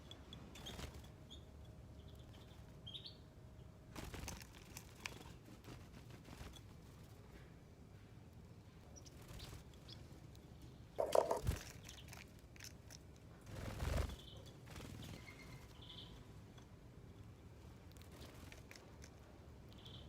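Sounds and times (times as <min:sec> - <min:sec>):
bird wingbeats and knocks: 0:11.0 - 0:11.8.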